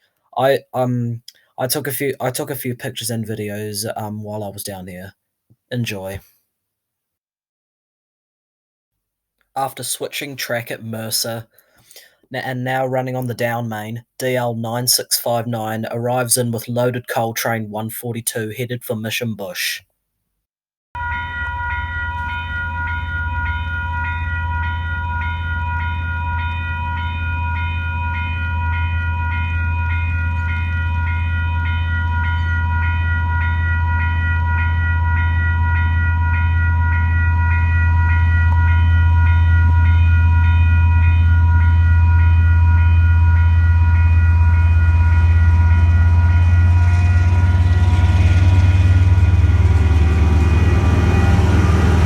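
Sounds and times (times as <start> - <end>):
diesel locomotive engine rumble: 21.0 - 52.0
level crossing bells ringing: 21.0 - 52.0.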